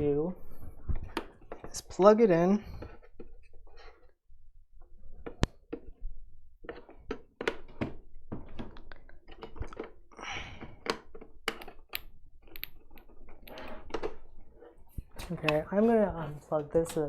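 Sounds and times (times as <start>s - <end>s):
plastic clicks and taps: 10.7s - 14.2s.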